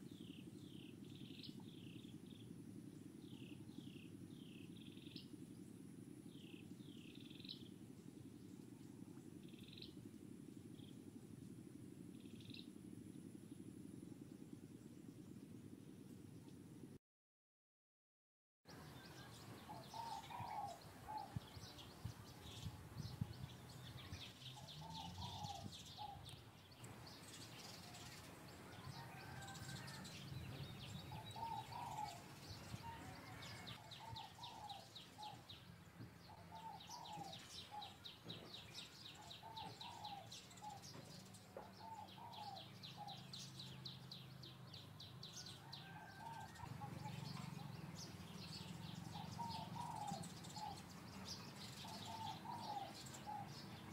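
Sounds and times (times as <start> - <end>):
faint low hum: 0.0 - 17.0
bird calls with trills: 18.7 - 53.9.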